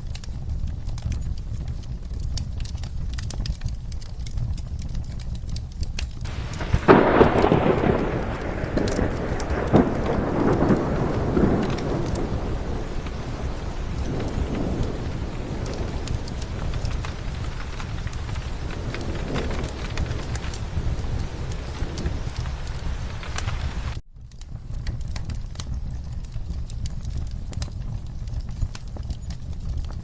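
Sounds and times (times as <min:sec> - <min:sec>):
steady rain: 0:00.0 - 0:30.0
wood fire crackling: 0:00.0 - 0:30.0
thunder rumbling: 0:06.2 - 0:30.0.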